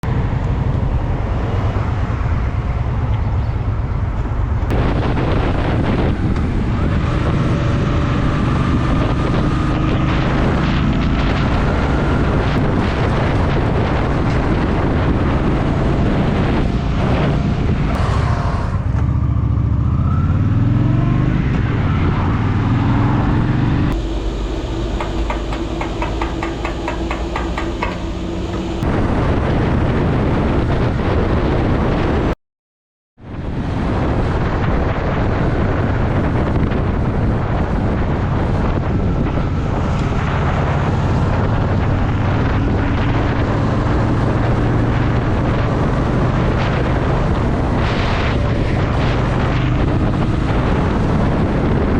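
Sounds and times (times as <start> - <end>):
motorcycle engine running: 23.0 - 29.2.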